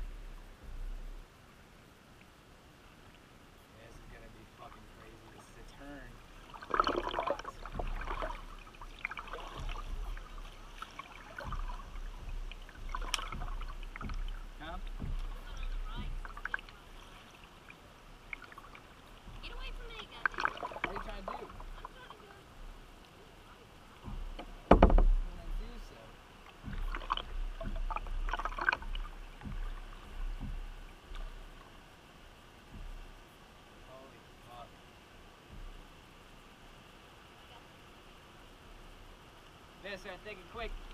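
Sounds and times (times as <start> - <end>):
river water splashing around kayak: 0.0 - 40.9
dull thumps: 6.5 - 17.5, 18.1 - 23.0, 23.9 - 31.8, 32.5 - 33.4, 35.5 - 35.9.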